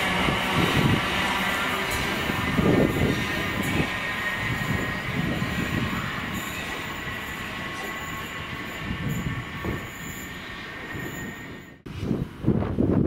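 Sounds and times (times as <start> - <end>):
wheels squealing on rails: 0.0 - 12.1
train wheels rumbling: 0.0 - 12.9.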